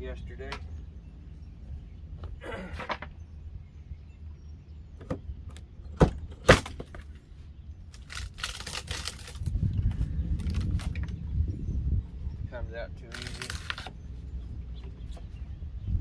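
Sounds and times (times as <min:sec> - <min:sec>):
wood crackling as pulled loose: 0:07.9 - 0:09.5, 0:13.1 - 0:13.9.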